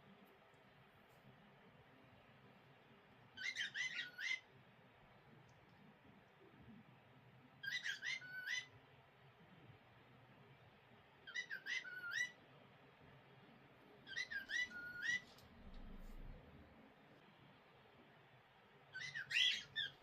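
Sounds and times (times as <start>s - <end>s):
cockatiel talking: 3.4s - 4.5s, 7.6s - 8.7s, 11.2s - 12.4s, 14.0s - 15.3s, 18.9s - 20.0s.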